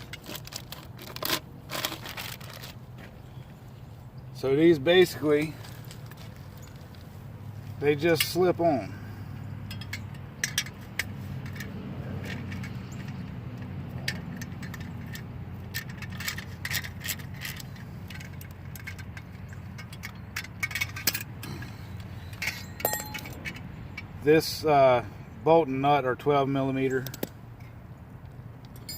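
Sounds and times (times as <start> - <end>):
metallic clinks and taps: 9.6 - 24.1, 28.6 - 28.9.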